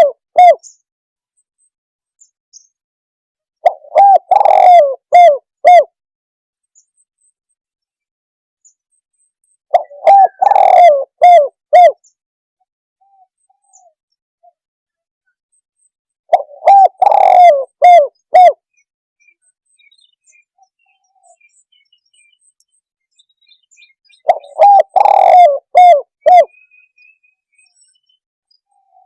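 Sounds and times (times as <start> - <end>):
dove cooing: 0.0 - 0.6, 3.6 - 6.0, 9.7 - 12.0, 16.3 - 18.6, 24.2 - 26.6.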